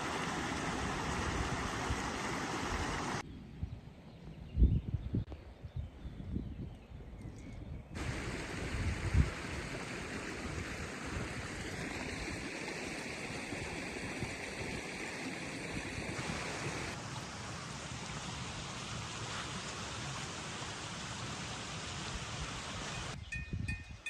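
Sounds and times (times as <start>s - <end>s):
running water rushing: 0.0s - 3.2s, 8.0s - 23.2s.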